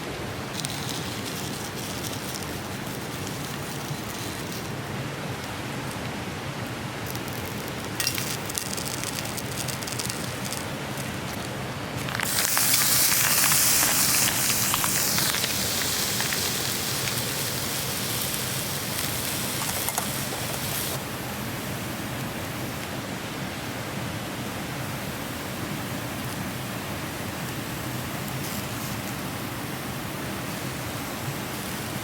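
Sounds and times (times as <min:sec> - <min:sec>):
fire crackles: 0:00.2 - 0:23.0, 0:24.9 - 0:32.0
bone marrow sizzling over campfire: 0:00.5 - 0:04.9, 0:05.5 - 0:21.0, 0:27.4 - 0:32.0.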